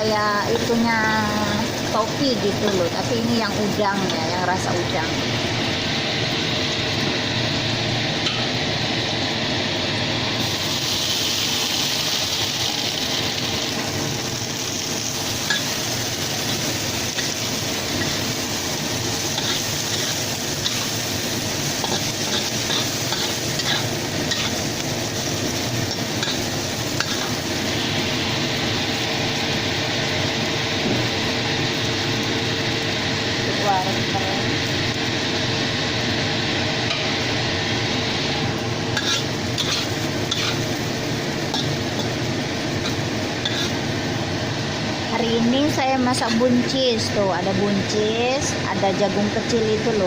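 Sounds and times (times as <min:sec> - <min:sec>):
vegetables sizzling in a pan: 0:00.0 - 0:50.0
spatula scraping and tapping pan: 0:39.0 - 0:40.6, 0:42.8 - 0:43.8.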